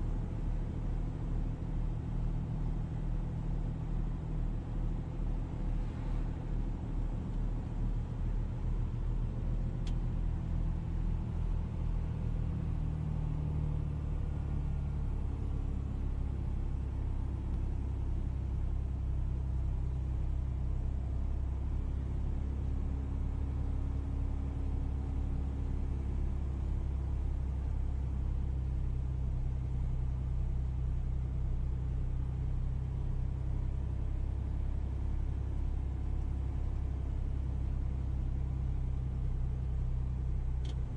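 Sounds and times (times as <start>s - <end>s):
vehicle engine rumbling: 0.0s - 40.9s.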